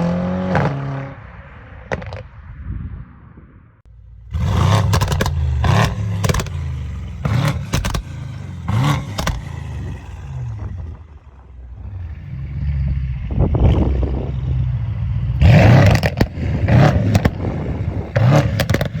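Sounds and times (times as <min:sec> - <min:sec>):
car engine revving in blips: 0:04.1 - 0:19.0
exhaust pops and bangs: 0:04.3 - 0:11.8, 0:15.6 - 0:19.0.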